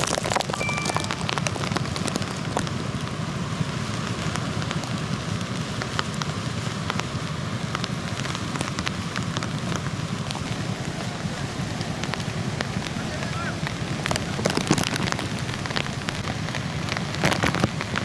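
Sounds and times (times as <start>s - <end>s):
surf breaking on a beach: 4.4s - 18.0s.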